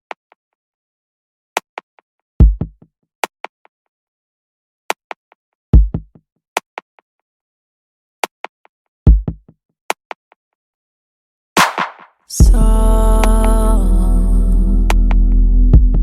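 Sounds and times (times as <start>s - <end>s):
deep bass kick drum: 2.4s - 2.7s, 5.8s - 6.1s, 9.1s - 9.4s, 12.4s - 13.8s, 14.8s - 16.0s.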